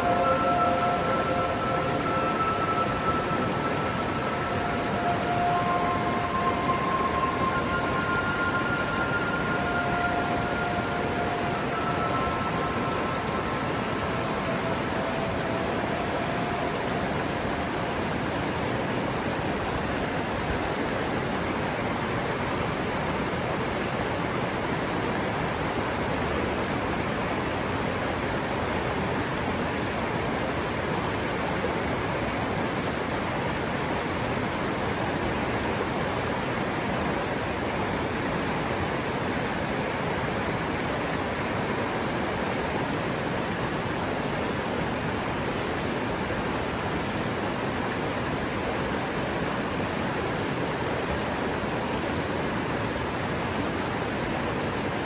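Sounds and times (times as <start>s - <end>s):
faint steady tones: 0.0s - 22.0s
river water rushing: 0.0s - 55.0s.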